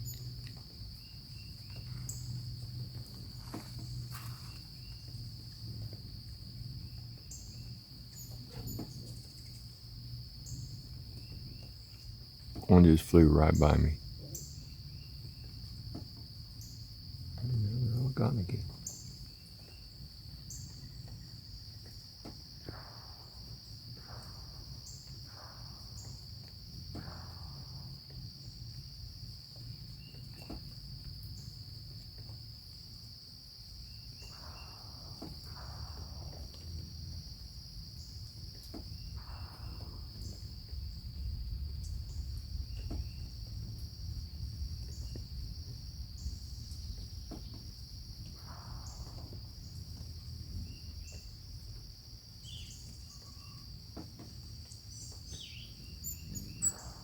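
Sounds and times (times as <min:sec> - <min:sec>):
insects trilling: 0:00.0 - 0:57.0
faint high chirps: 0:55.0 - 0:57.0.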